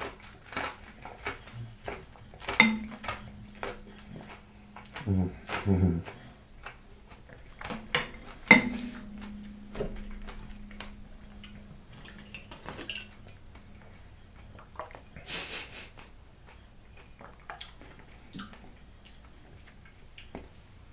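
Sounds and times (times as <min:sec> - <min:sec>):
spoon clinking and scraping bowl: 0:02.4 - 0:06.3, 0:07.6 - 0:13.1
ringing tone: 0:02.5 - 0:15.2.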